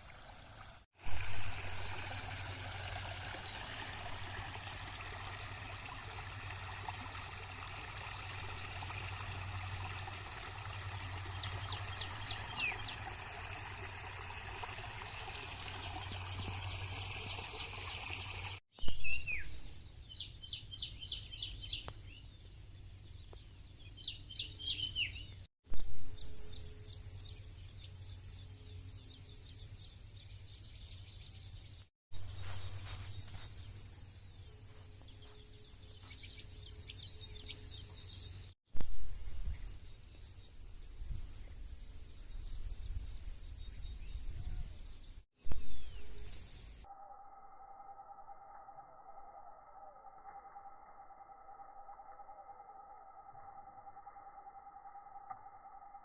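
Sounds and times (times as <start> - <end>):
insects chirring: 0.6 - 9.8, 32.2 - 56.0.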